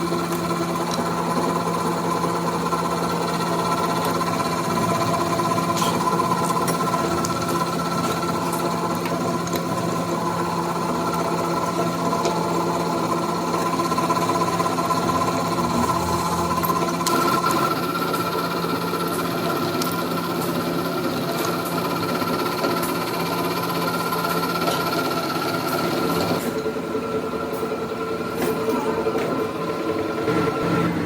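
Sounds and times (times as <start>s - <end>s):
machinery humming: 0.0s - 31.0s.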